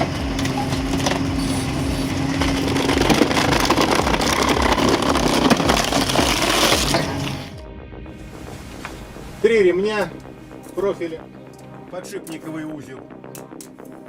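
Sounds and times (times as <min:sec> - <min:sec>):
machine clattering and cracking logs: 0:00.0 - 0:07.5
firewood processor whine: 0:00.0 - 0:07.6.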